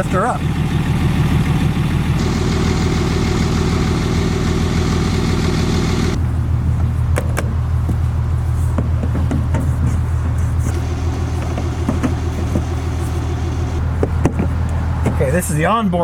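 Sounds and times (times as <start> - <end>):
low engine-like hum: 0.0 - 16.0
electric jacks whirring: 10.2 - 15.1.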